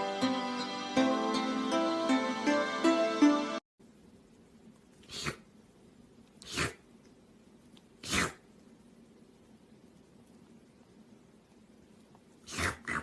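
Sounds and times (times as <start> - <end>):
pet sneezing: 5.0 - 5.5, 6.4 - 6.8, 8.0 - 8.5, 12.4 - 13.0.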